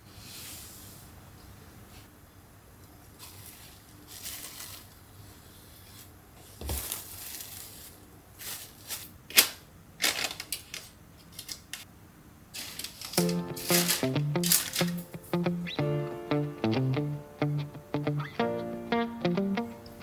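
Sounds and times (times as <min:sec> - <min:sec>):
rustling and crinkling: 0:02.9 - 0:11.9, 0:12.6 - 0:15.3.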